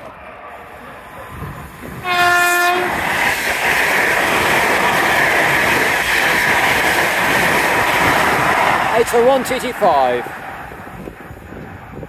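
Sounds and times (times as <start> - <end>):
high-speed train passing: 0.0 - 12.0
train horn blast: 2.0 - 2.9.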